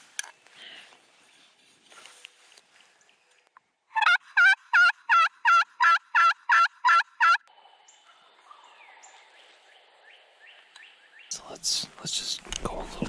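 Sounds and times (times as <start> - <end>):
turkey call yelps: 4.0 - 7.4.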